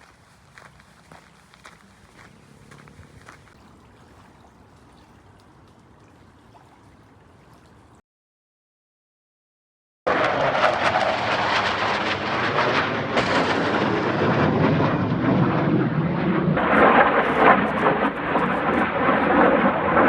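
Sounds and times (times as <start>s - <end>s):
jet flying past: 10.1s - 20.0s.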